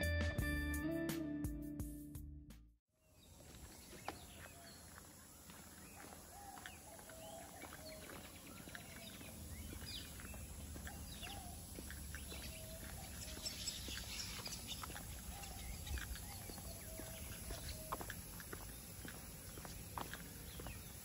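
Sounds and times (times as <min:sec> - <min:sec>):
birds chirping: 0:03.0 - 0:21.0
footsteps on concrete: 0:03.3 - 0:21.0.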